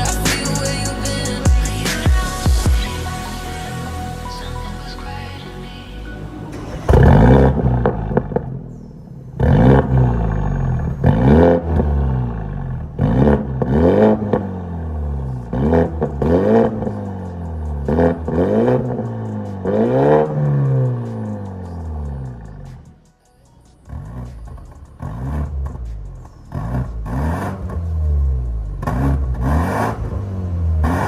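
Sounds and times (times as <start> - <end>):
car engine throttle blips: 5.9 - 22.9.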